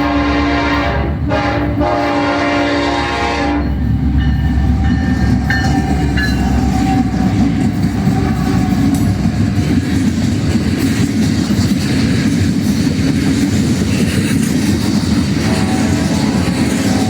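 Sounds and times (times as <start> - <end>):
locomotive air horn: 0.0 - 3.8
train rumbling past: 0.0 - 17.0.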